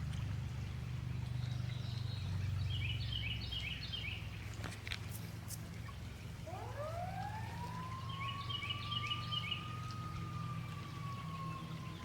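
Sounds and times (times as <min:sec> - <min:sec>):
stream flowing: 0:00.0 - 0:12.0
bird chirping: 0:07.8 - 0:12.0.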